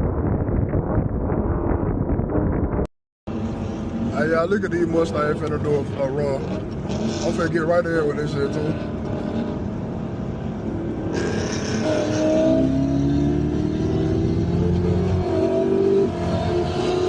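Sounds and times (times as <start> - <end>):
car engine accelerating hard: 10.6 - 17.0.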